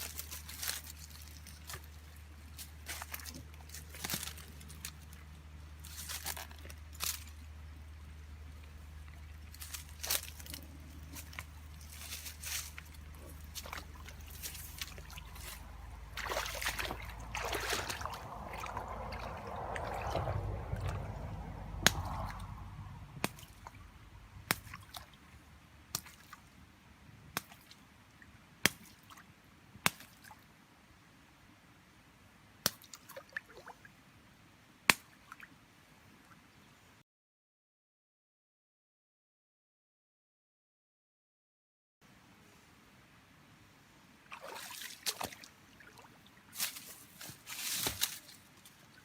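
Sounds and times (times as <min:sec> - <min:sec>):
water sloshing and splashing: 0:00.0 - 0:08.0, 0:08.6 - 0:25.3, 0:44.2 - 0:49.0.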